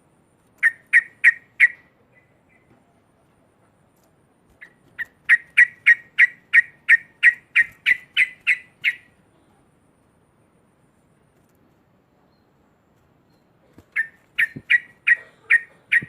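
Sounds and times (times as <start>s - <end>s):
bird chattering: 0.6s - 2.7s, 4.6s - 9.2s, 13.7s - 16.0s.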